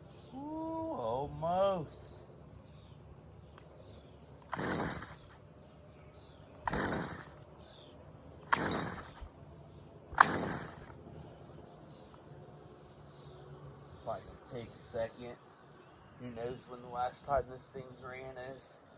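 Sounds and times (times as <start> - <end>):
string trimmer pull-start cranking: 4.4 - 5.4, 6.6 - 7.4, 8.4 - 9.3, 10.1 - 11.0.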